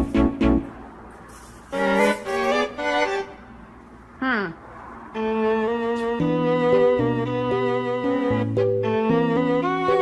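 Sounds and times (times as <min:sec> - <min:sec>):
background music with held melodic notes: 0:00.0 - 0:01.0, 0:01.7 - 0:03.8, 0:05.1 - 0:10.0.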